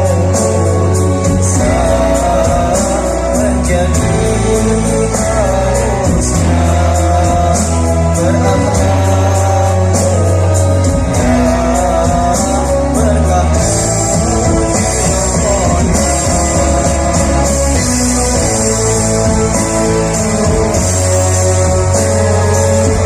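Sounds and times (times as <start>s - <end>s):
choir singing: 0.0s - 23.0s
held bass notes: 0.0s - 23.0s.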